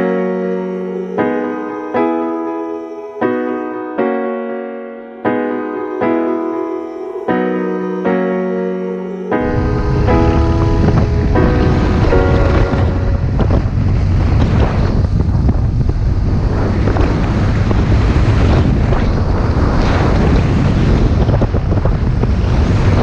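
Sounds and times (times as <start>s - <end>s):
wind buffeting microphone: 9.4s - 23.0s.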